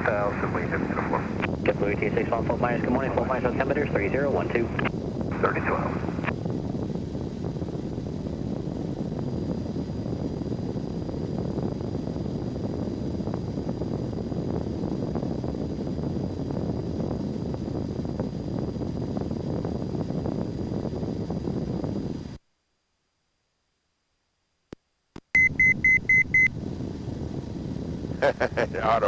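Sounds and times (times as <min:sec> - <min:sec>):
light aircraft engine and propeller: 0:00.0 - 0:22.4.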